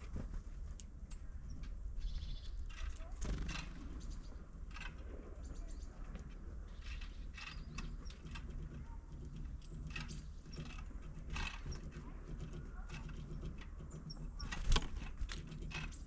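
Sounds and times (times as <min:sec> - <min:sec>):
bird pecking at feeder: 0:06.0 - 0:16.0.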